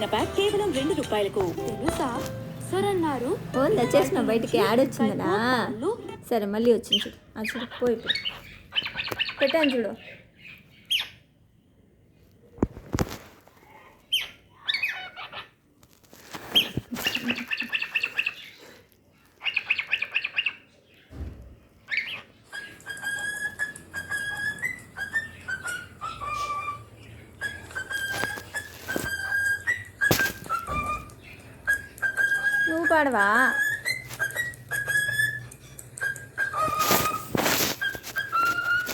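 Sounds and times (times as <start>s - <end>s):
cockatiel chirping and chattering: 6.9s - 11.3s, 14.1s - 15.6s, 16.4s - 18.6s, 19.4s - 20.8s, 21.9s - 38.9s
cockatiel whistling a tune: 21.9s - 38.9s.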